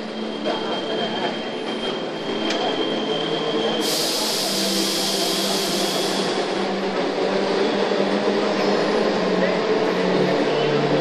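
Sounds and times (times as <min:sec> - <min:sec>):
train rumbling and humming: 0:00.0 - 0:11.0
loud high hiss: 0:03.8 - 0:06.4.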